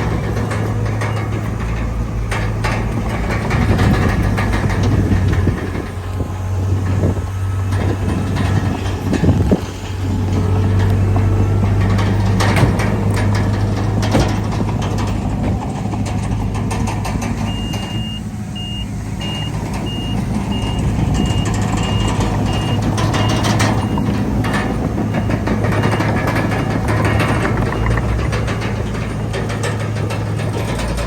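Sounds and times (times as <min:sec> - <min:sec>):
metal clanks: 0:00.0 - 0:07.0, 0:07.7 - 0:31.0
diesel machinery running: 0:00.0 - 0:31.0
reversing alarm beeping: 0:17.4 - 0:29.8.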